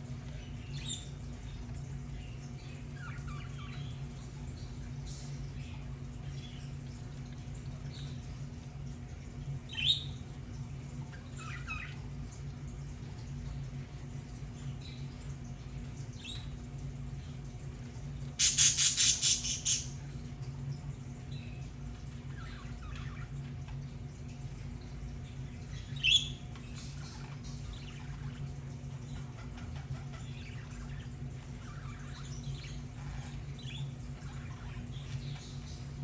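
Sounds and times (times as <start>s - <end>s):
steady low hum: 0.0s - 36.0s
budgerigars chirping and warbling: 2.2s - 4.6s, 11.1s - 12.1s, 18.4s - 20.0s, 25.6s - 35.8s.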